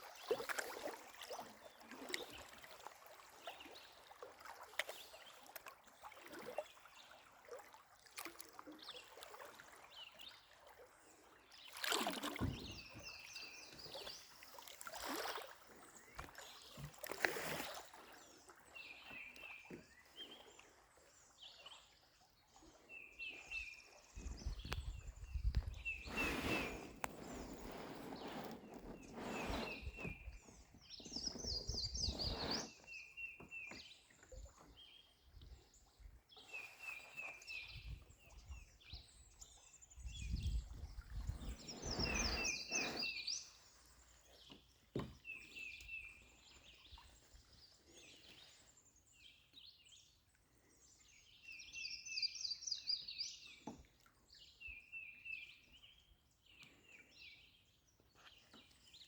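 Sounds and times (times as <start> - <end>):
songbird singing: 11.6 - 14.4, 22.8 - 59.0.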